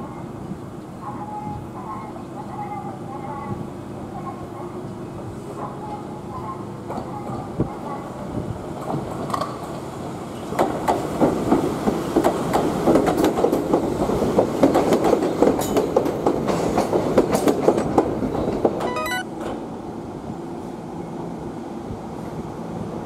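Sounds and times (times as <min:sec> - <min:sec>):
brief pitched tone: 0:18.8 - 0:19.3.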